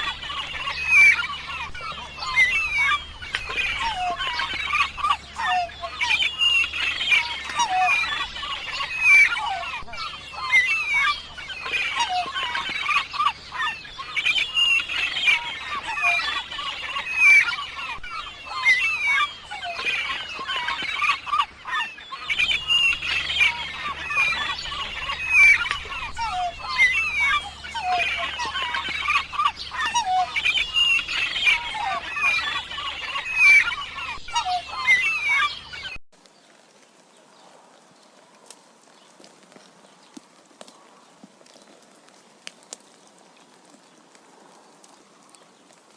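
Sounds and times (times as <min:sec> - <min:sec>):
flock of birds calling: 0:00.0 - 0:45.9.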